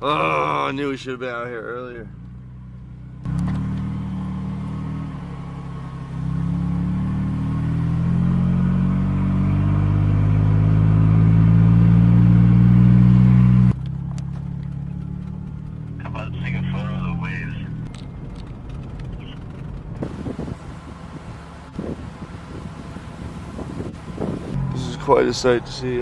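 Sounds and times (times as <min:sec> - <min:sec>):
car engine accelerating: 0:01.9 - 0:26.0.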